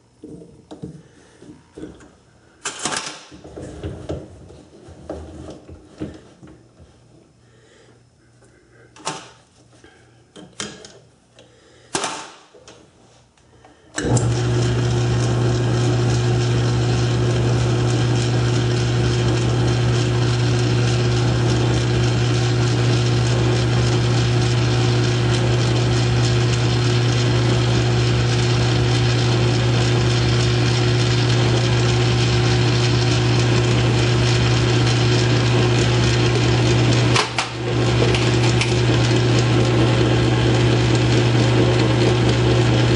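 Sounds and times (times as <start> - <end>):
lathe humming: 14.0 - 42.9
rattling lathe drive: 37.1 - 39.0.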